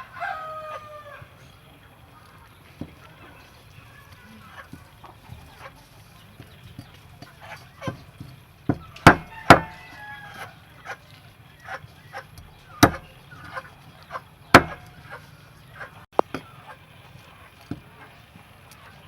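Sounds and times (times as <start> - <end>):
knife chopping on cutting board: 7.8 - 9.8, 12.8 - 13.1, 14.6 - 14.9.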